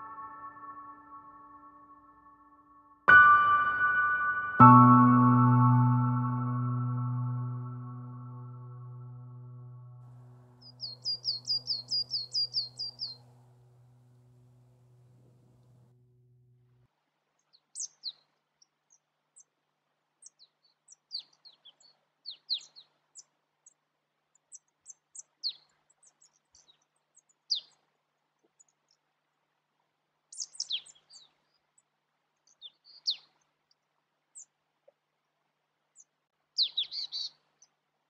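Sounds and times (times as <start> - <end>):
small birds chirping: 10.6 - 14.2, 17.4 - 19.6, 20.2 - 29.1, 30.3 - 34.6, 35.9 - 37.8.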